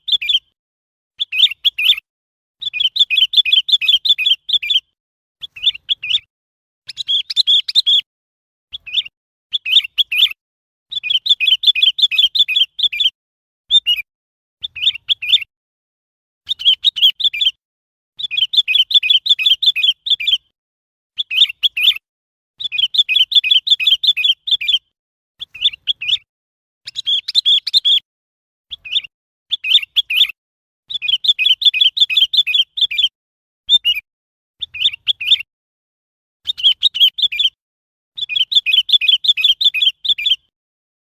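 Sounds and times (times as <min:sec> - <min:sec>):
bird chirping: 0:00.0 - 0:00.6, 0:01.2 - 0:02.0, 0:02.6 - 0:06.3, 0:06.9 - 0:08.1, 0:08.7 - 0:15.5, 0:16.4 - 0:17.6, 0:18.2 - 0:20.5, 0:21.2 - 0:22.0, 0:22.6 - 0:28.0, 0:28.7 - 0:33.1, 0:33.7 - 0:34.0, 0:34.6 - 0:35.5, 0:36.4 - 0:37.6, 0:38.2 - 0:40.5.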